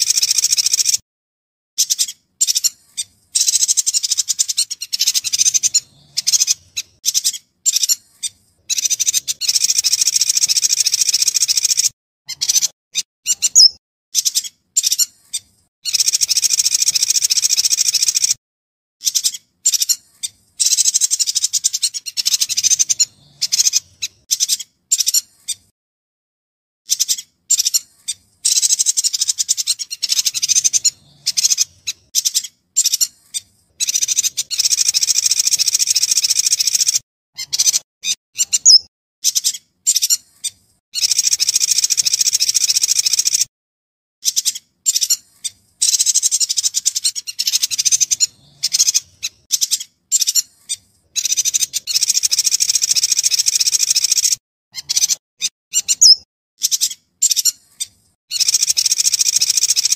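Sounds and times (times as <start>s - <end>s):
bird singing rapid high notes: 1.8s - 18.4s, 26.9s - 43.4s, 45.8s - 50.4s, 51.2s - 57.6s, 58.3s - 59.9s
short bird calls: 36.4s - 43.5s, 44.2s - 59.9s.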